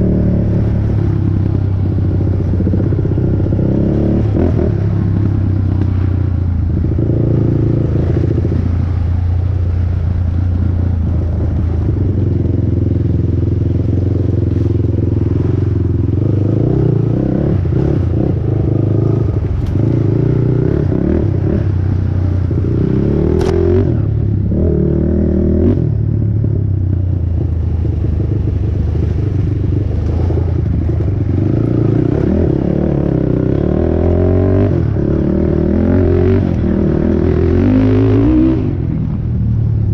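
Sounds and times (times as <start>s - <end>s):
quad engine revving: 22.4s - 25.9s, 28.0s - 38.9s.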